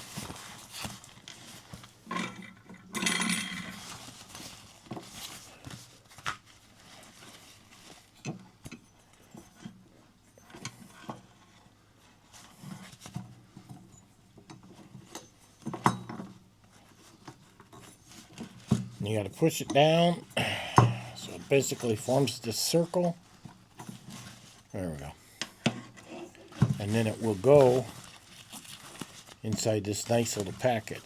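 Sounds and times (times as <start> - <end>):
scraping rustle: 0.0 - 2.1, 3.4 - 8.2, 25.8 - 31.0
metal stove parts clinking: 2.1 - 3.8.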